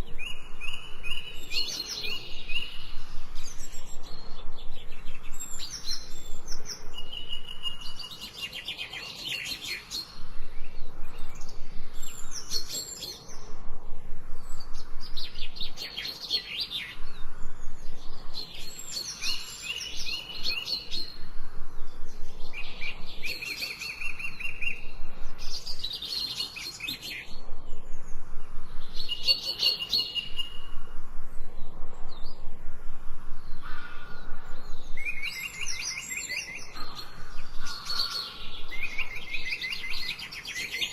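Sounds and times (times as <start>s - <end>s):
songbirds singing trills: 0.0s - 40.9s.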